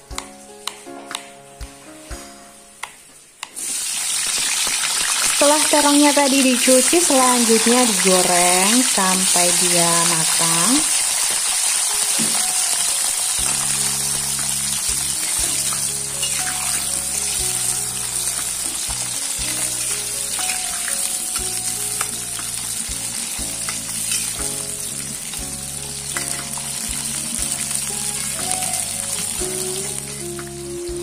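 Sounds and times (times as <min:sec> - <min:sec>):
eggplant sizzling in oil: 0:03.5 - 0:31.0.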